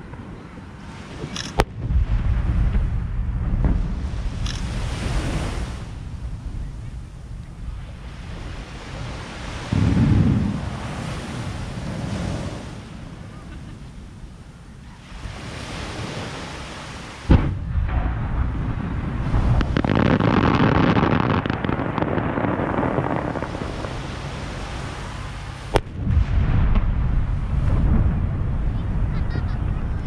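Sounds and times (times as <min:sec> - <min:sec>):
surf: 0:00.0 - 0:30.0
wind noise on microphone: 0:00.0 - 0:30.0
fireworks booming and crackling: 0:01.5 - 0:12.6, 0:17.2 - 0:30.0
firework bang: 0:01.6 - 0:05.3, 0:09.7 - 0:10.8, 0:17.3 - 0:29.6.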